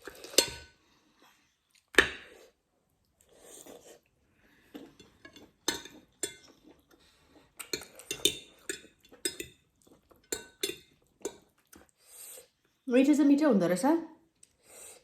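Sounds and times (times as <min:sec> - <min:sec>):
utensils clinking against a dish: 0:00.0 - 0:00.8, 0:04.8 - 0:06.7, 0:07.6 - 0:11.5.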